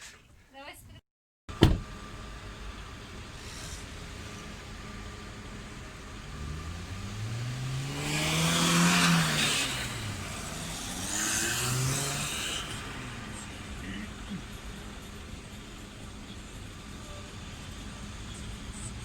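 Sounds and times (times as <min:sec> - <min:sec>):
tyre and road noise: 0:01.5 - 0:19.0
vehicle passing: 0:03.4 - 0:19.0
car passing by: 0:06.2 - 0:15.5.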